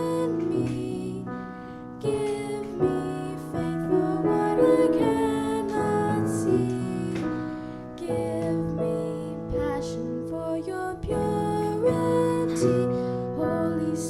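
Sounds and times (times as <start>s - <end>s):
slow piano worship music: 0.0s - 14.0s.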